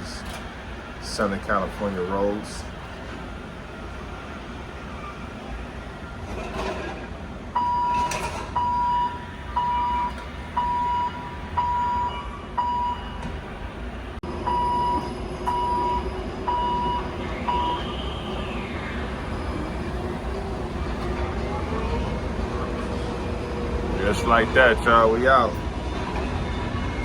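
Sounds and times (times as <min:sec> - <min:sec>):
low engine rumble: 0:00.0 - 0:27.0
vehicle backup alarm beeping: 0:07.5 - 0:13.5, 0:14.4 - 0:20.6
brief whine: 0:14.5 - 0:20.6.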